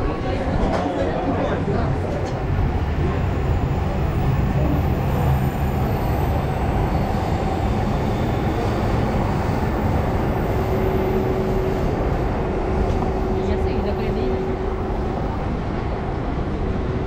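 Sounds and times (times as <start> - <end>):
train rumbling overhead: 0.0 - 17.0.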